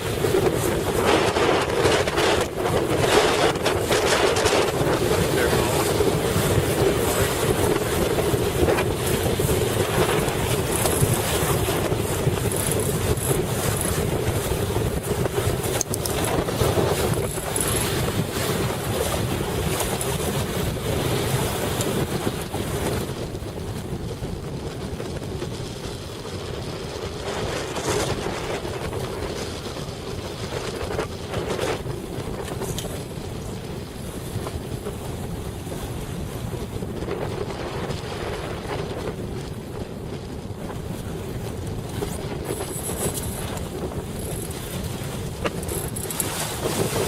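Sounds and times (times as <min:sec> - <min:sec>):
rushing water: 0:00.0 - 0:24.7
wind buffeting microphone: 0:00.0 - 0:47.0.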